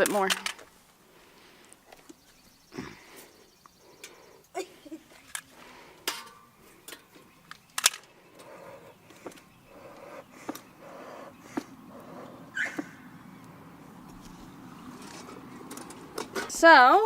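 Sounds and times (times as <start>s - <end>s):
bellows puffing air: 8.1s - 14.6s.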